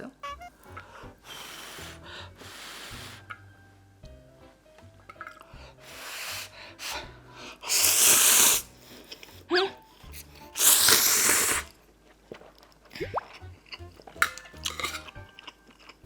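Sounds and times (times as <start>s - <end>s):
noodles slurped loudly: 1.3s - 3.3s, 7.6s - 8.8s, 10.4s - 15.2s.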